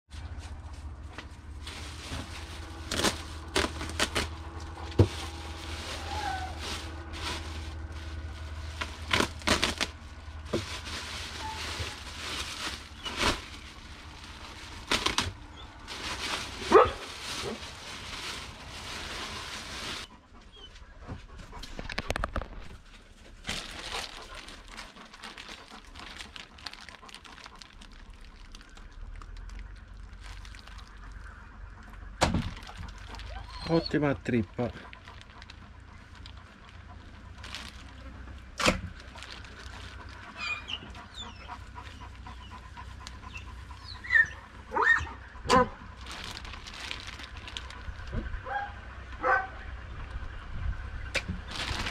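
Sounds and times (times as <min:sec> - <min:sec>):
plastic bags crinkling and rustling: 0:00.3 - 0:20.1, 0:21.7 - 0:31.4, 0:32.3 - 0:41.1, 0:45.9 - 0:48.4, 0:51.3 - 0:51.9.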